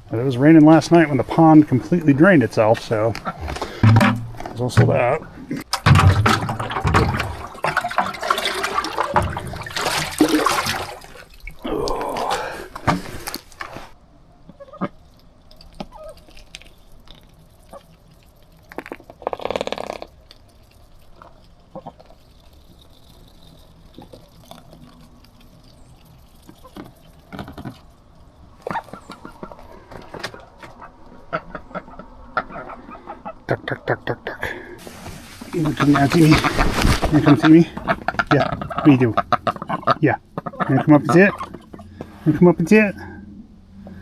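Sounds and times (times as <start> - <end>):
water pouring and splashing: 0.0 - 14.0, 15.2 - 30.6, 34.7 - 39.8.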